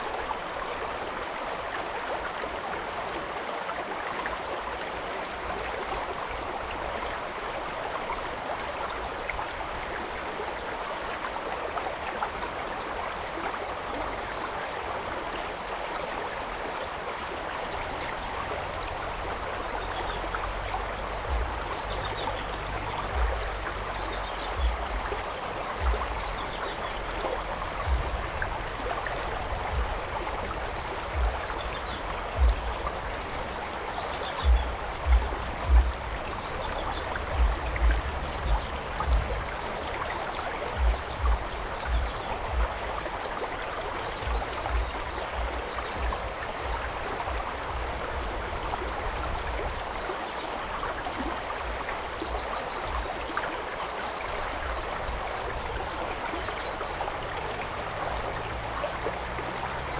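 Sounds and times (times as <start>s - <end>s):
stream rushing over rocks: 0.0s - 59.9s
low thumps: 21.2s - 33.7s, 34.4s - 39.8s, 40.8s - 43.0s.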